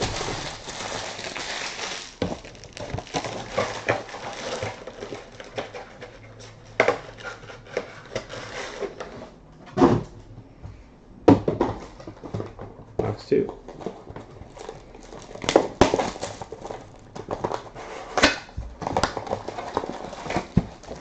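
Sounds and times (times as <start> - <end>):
cards and packaging rustling: 0.0 - 6.2, 13.4 - 17.8, 18.8 - 21.0.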